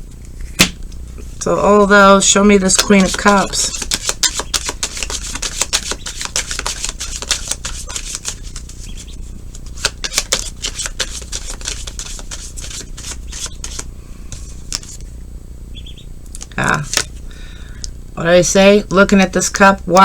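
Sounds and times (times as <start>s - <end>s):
cards being shuffled: 2.2s - 15.1s.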